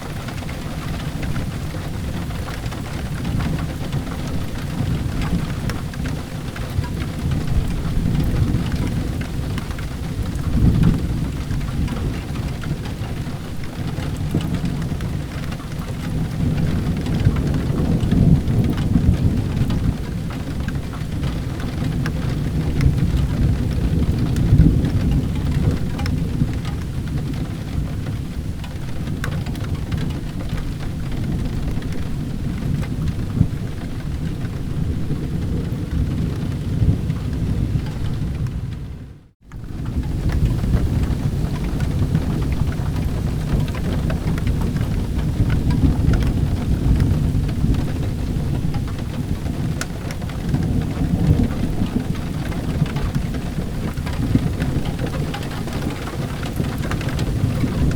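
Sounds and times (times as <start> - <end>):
steady rain: 0.0 - 57.9
thunder rumbling: 0.0 - 57.9.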